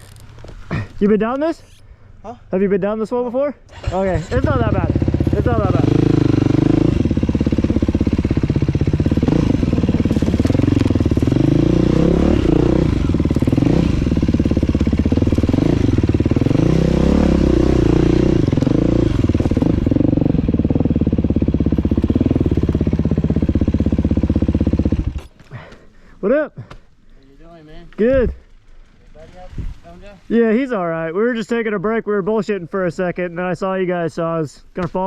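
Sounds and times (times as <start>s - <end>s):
dirt bike engine revving: 3.7s - 25.3s.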